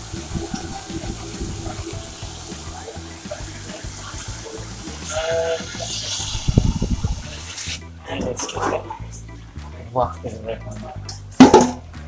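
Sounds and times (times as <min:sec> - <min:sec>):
water running in sink: 0:00.0 - 0:09.0
pots being washed: 0:00.0 - 0:09.1, 0:11.4 - 0:11.8
background music with beat: 0:00.0 - 0:09.9, 0:10.6 - 0:12.0.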